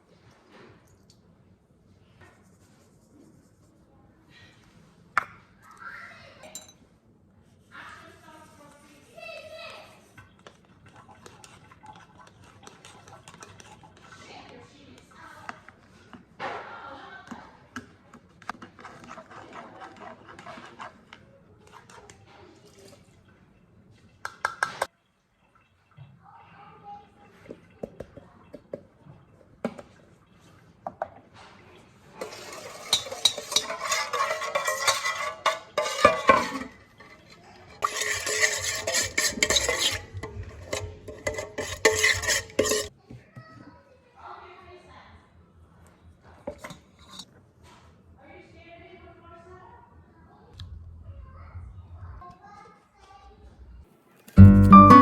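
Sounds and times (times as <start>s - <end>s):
dishes and utensils clattering: 6.4s - 6.8s, 32.2s - 42.9s.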